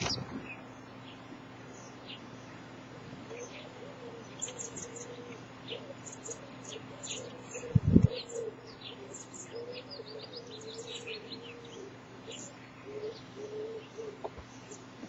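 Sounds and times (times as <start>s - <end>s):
birds chirping: 0.0s - 15.0s
wavering cooing call: 3.3s - 14.9s.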